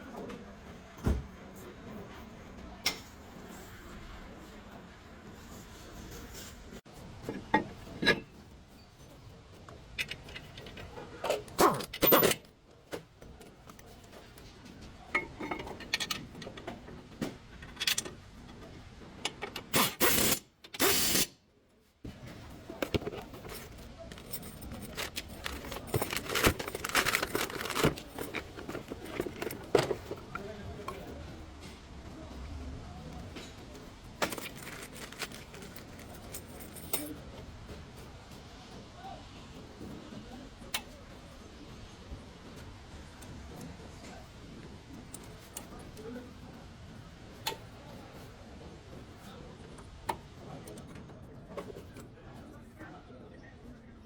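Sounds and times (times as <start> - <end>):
parts and tools being handled: 6.3 - 21.3, 22.1 - 31.2, 33.2 - 37.2
metallic clanks and scrapes: 22.6 - 30.4.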